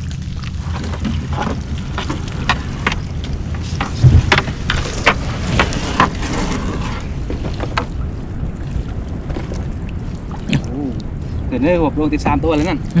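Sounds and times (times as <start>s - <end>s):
wind and boat rumble: 0.0s - 13.0s
heavy thump: 2.0s - 6.2s.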